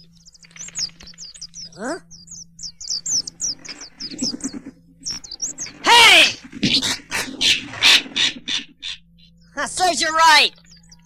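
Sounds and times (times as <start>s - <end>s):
small birds chirping: 0.0s - 11.0s
loud shout: 5.8s - 6.4s.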